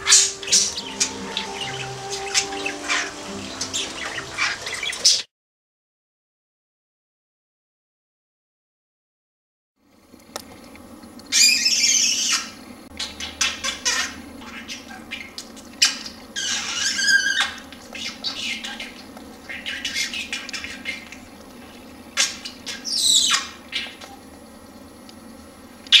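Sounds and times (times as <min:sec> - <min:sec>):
budgerigar warbling chatter: 0:00.0 - 0:05.2.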